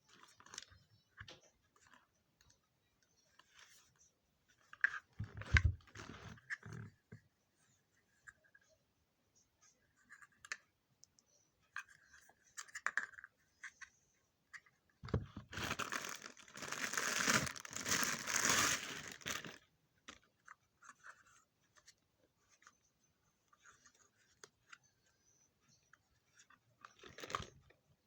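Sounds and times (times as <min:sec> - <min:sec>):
plastic wrap crinkling and tearing: 0:15.5 - 0:19.6
small clicks and rustles: 0:19.1 - 0:27.8.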